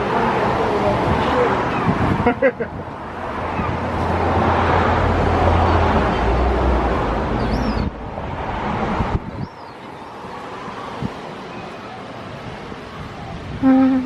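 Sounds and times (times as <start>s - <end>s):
outdoor noise: 0.0s - 14.0s
faint high chirp: 7.4s - 7.9s.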